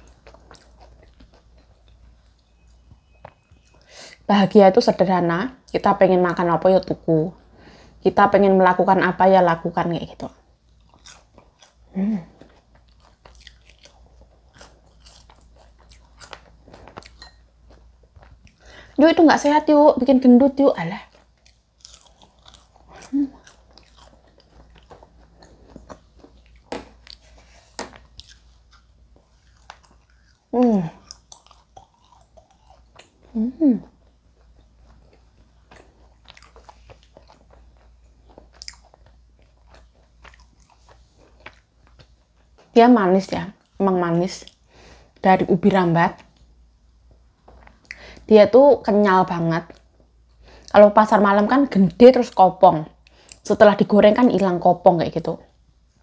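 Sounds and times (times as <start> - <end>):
person chewing crunchy snacks: 0.0 - 3.8, 10.6 - 18.9, 21.0 - 42.6.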